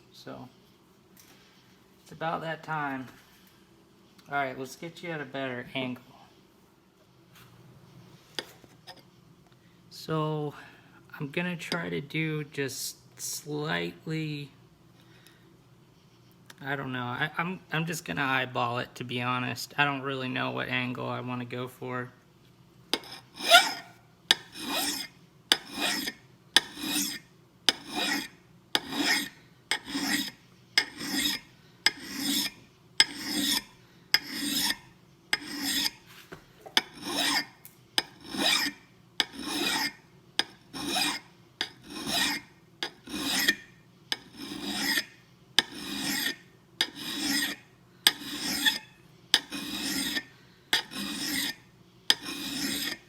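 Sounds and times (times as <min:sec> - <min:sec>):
file scraping steel: 0:22.9 - 0:36.1, 0:36.8 - 0:53.0.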